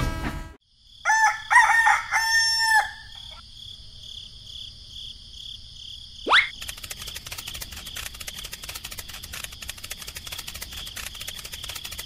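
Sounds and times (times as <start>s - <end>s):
rooster crowing: 1.0s - 3.4s.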